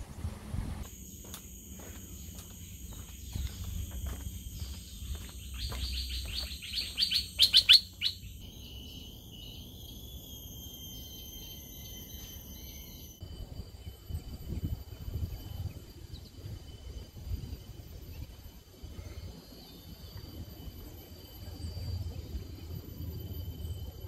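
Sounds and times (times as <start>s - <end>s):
birdsong: 0.0s - 10.3s
high-pitched insect drone: 0.8s - 24.0s.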